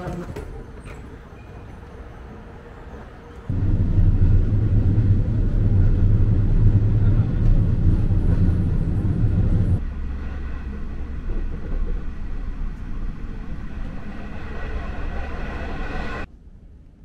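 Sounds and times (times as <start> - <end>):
train rumbling inside carriage: 0.0 - 16.3
faint whine: 3.5 - 17.0.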